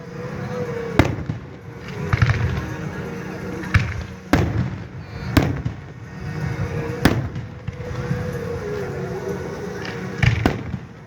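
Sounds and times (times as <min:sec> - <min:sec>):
continuous low rumble: 0:00.0 - 0:11.0
firework shells bursting: 0:00.6 - 0:11.0
sharp firework bang: 0:03.7 - 0:06.0, 0:07.0 - 0:08.0.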